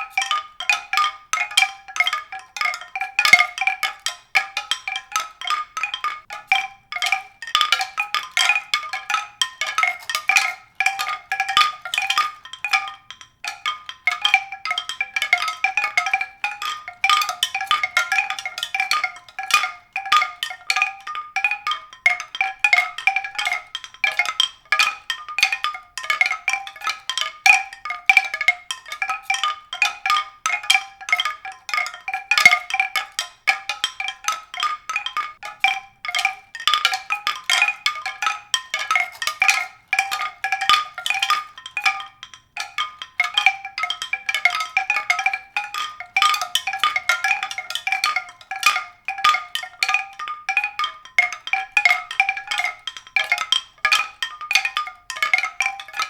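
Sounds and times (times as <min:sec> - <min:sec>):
mallet percussion music: 0:00.0 - 0:56.0.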